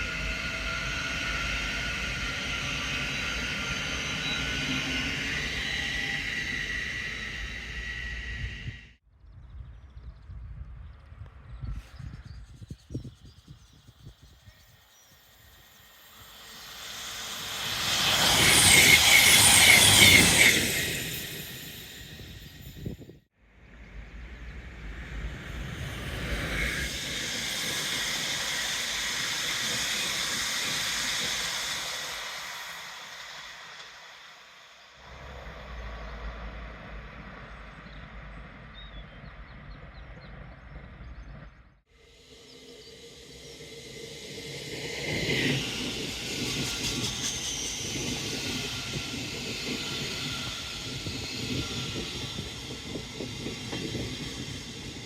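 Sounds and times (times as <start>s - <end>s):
train rushing past: 0.0s - 9.0s, 14.3s - 55.0s
low rumble: 35.0s - 41.8s.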